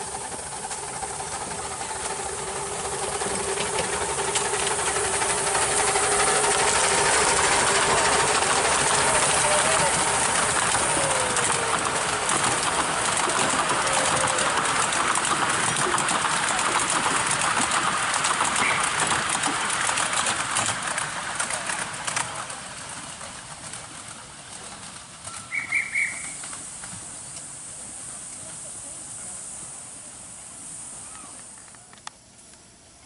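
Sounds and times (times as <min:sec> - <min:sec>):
steam hiss: 0:00.0 - 0:23.3, 0:25.5 - 0:31.7
wheels clicking over rails: 0:00.0 - 0:27.6
miniature train rolling on track: 0:00.0 - 0:30.4, 0:31.0 - 0:32.6.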